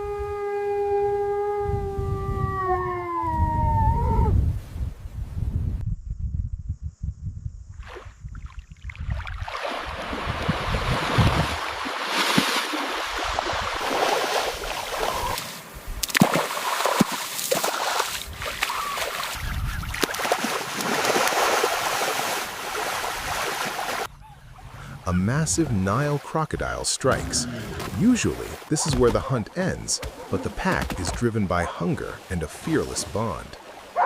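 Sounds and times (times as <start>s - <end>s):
water splashing and churning: 7.8s - 34.0s.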